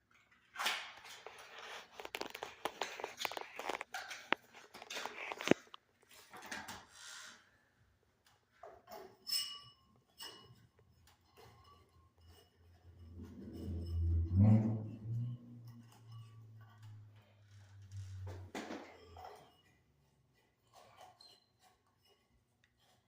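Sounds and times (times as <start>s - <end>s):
crinkly rustling: 1.1s - 6.3s.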